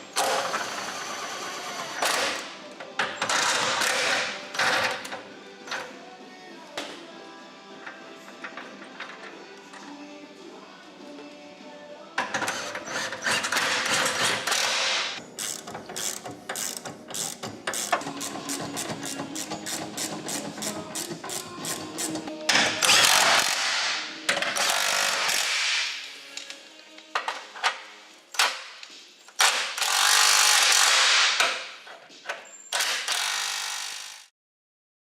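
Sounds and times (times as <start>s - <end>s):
ratchet wrench clicking: 15.4s - 22.2s, 29.5s - 31.1s, 32.8s - 34.3s.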